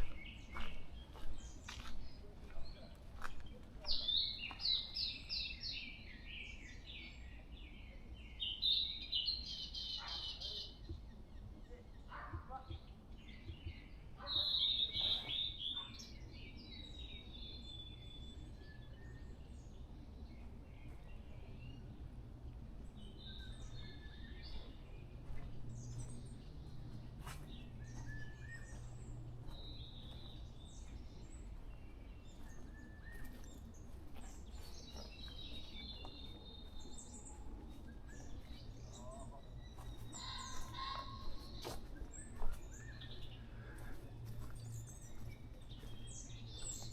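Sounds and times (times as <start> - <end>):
birds chirping and whistling: 23.0 - 46.9.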